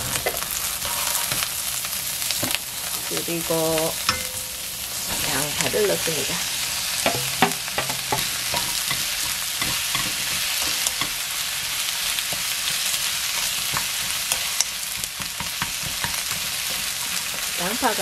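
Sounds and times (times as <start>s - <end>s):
onions sizzling in oil: 0.0s - 18.0s
wooden spoon scraping pan: 0.2s - 1.5s.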